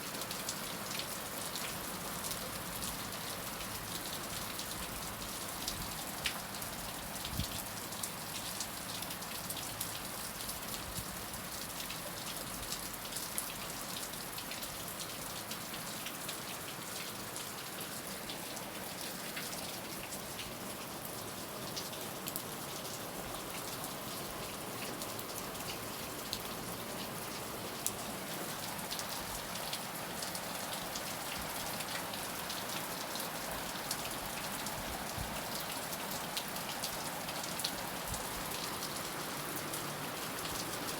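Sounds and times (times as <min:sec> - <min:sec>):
heavy rain falling: 0:18.5 - 0:40.9.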